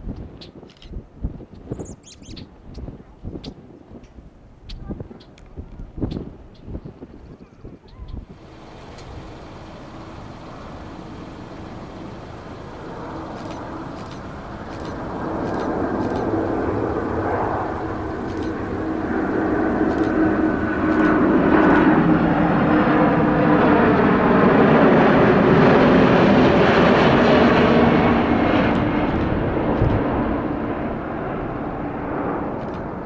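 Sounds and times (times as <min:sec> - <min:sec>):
jet airliner passing: 0:08.2 - 0:33.0.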